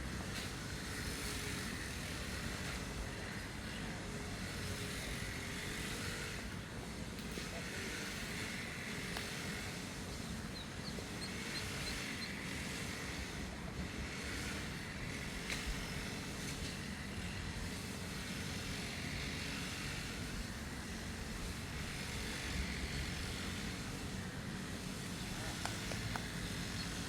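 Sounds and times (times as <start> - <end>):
grass cutter engine running: 4.5 - 16.6.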